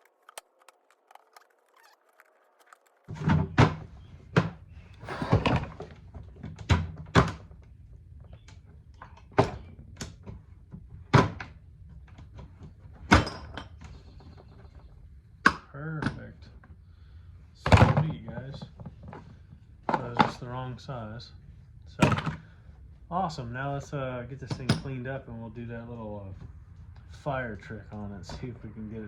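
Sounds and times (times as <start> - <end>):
short scrape: 5.0 - 5.6.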